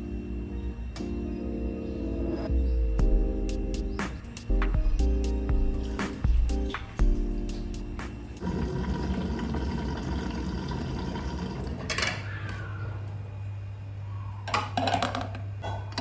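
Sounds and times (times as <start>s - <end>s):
water running: 4.8s - 12.0s.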